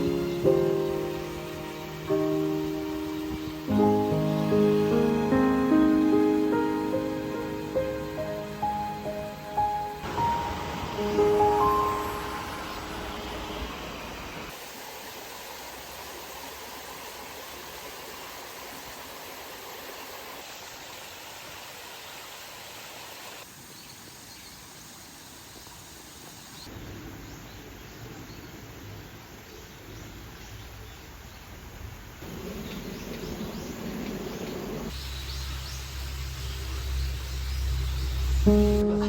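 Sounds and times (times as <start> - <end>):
river water rushing: 0.0 - 20.4.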